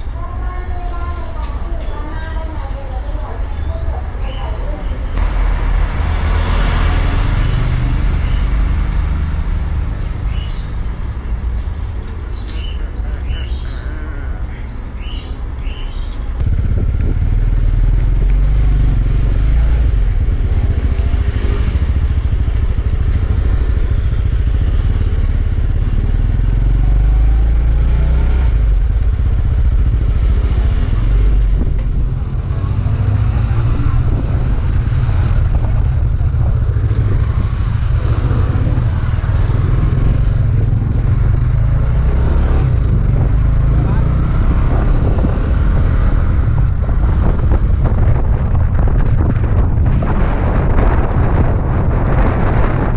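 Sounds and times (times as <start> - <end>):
road traffic rumble: 0.0 - 52.9
bird chirps: 10.0 - 10.8, 11.6 - 14.0, 14.6 - 16.2.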